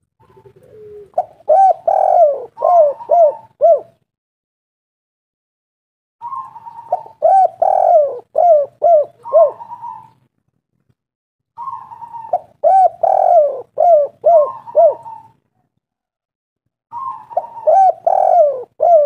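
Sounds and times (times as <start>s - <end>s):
dove cooing: 0.1s - 4.0s, 6.2s - 10.2s, 11.6s - 15.7s, 16.9s - 19.0s.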